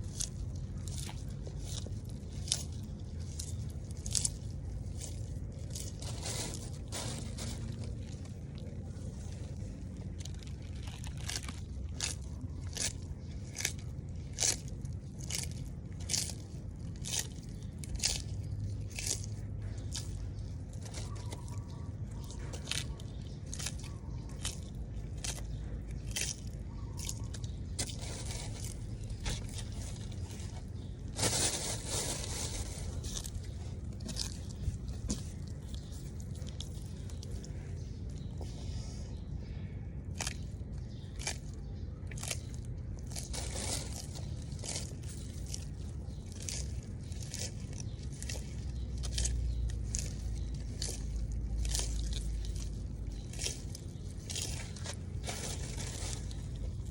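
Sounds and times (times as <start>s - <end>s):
tortoise crunching food: 0.0s - 56.9s
scraping rustle: 5.0s - 11.6s, 27.8s - 37.7s, 43.2s - 45.7s, 54.2s - 56.9s.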